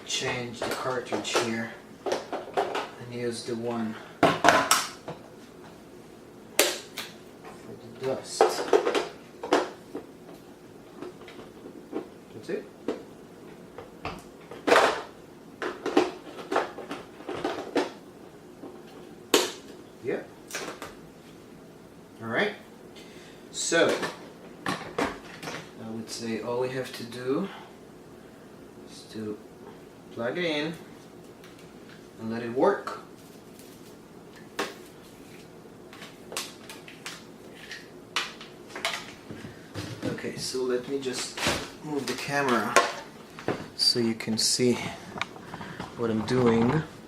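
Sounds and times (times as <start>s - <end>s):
faint room hum: 0.0s - 47.0s
handling clicks and knocks: 45.2s - 46.9s.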